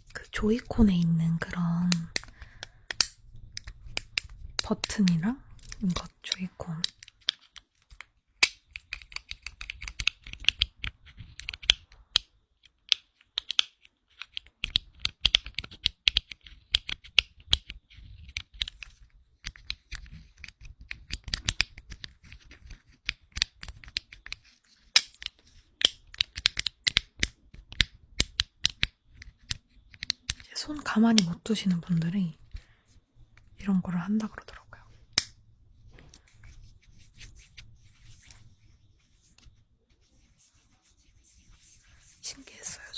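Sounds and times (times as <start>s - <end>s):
fidget cube clicking: 0.2s - 31.8s, 35.1s - 35.4s.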